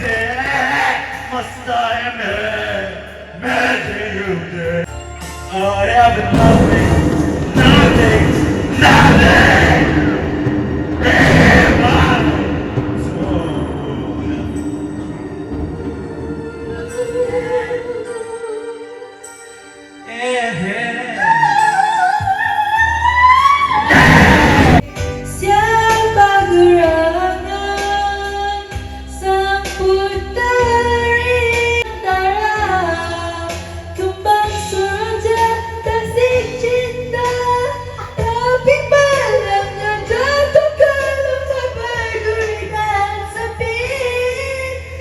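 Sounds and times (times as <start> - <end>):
pop ballad backing track: 24.8 - 44.9.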